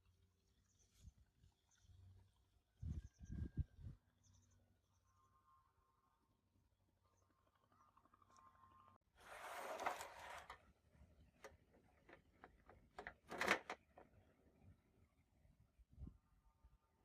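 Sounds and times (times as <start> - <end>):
brushing or scraping on workbench: 9.2 - 10.6
small clicks and knocks: 11.4 - 14.2.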